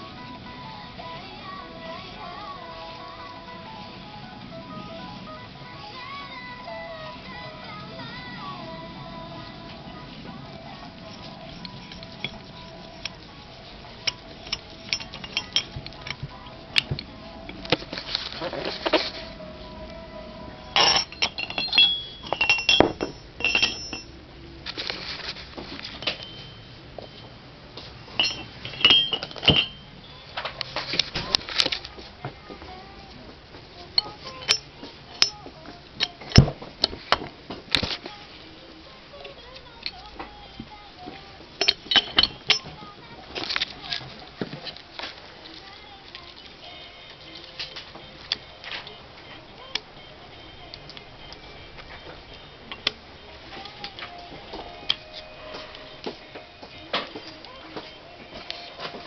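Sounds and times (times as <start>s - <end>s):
metal tools clicking and clinking: 11.0s - 16.2s, 20.7s - 24.2s, 25.9s - 27.2s, 28.1s - 31.9s, 34.0s - 37.9s, 41.1s - 45.2s.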